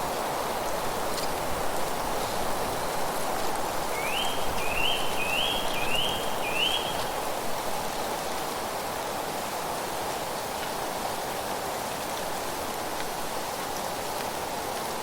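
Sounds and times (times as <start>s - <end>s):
wind through leaves: 0.0s - 15.0s
small bird calling: 4.0s - 7.2s.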